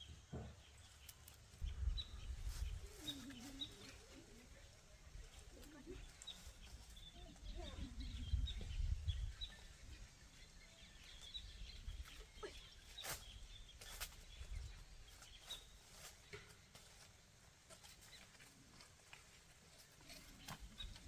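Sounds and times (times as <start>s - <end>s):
small bird chirps: 0.0s - 16.9s
low wind rumble: 1.6s - 3.0s, 6.7s - 12.1s.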